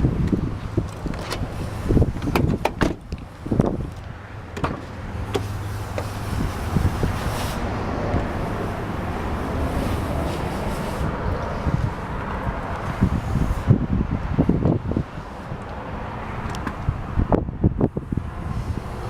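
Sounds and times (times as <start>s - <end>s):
car door clicks and clunks: 0.2s - 6.1s.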